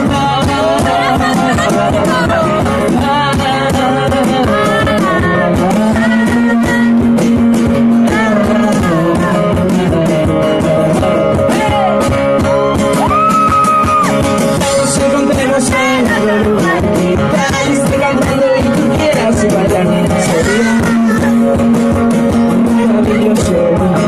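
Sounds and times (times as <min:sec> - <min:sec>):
sliding melody line: 0:00.0 - 0:13.0
guitar: 0:00.0 - 0:24.0
hand percussion beat: 0:00.0 - 0:24.0.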